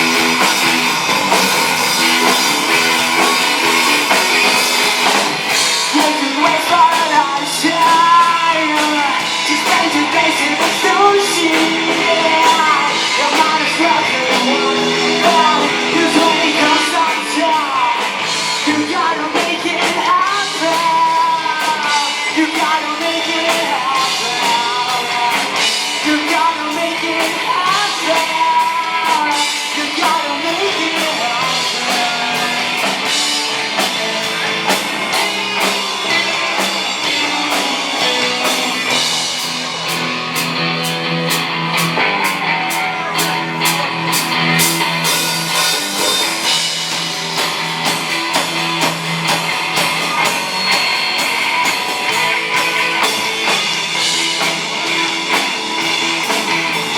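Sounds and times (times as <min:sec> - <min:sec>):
person singing: 0:00.0 - 0:40.0
live rock band playing: 0:00.0 - 0:56.9.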